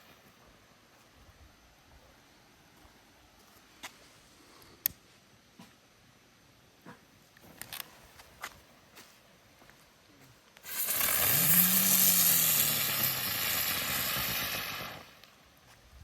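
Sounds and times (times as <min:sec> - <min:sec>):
low hum of spinning firework: 0:10.5 - 0:16.0
firework spinner hissing: 0:10.6 - 0:15.4.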